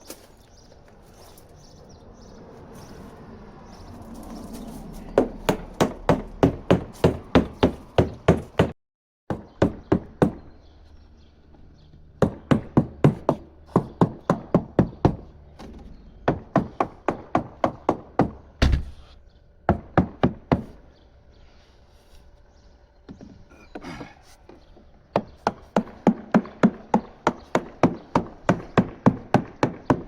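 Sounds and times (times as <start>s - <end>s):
hammer tapping on boat hull: 12.2s - 15.2s, 25.1s - 30.0s.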